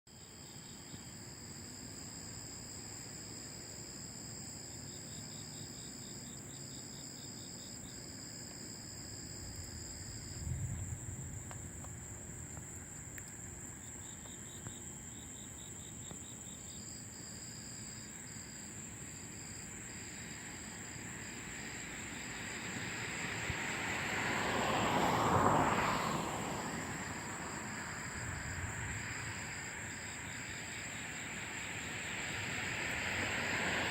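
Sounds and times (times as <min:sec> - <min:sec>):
insects trilling: 0:00.1 - 0:33.9
vehicle passing: 0:21.4 - 0:33.9.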